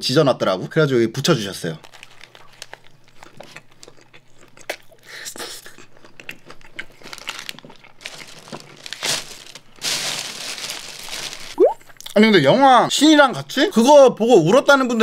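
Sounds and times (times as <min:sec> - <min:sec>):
paper wrapper crinkling: 0:01.8 - 0:03.5, 0:06.9 - 0:12.0
chewing with small crunches: 0:01.9 - 0:08.8.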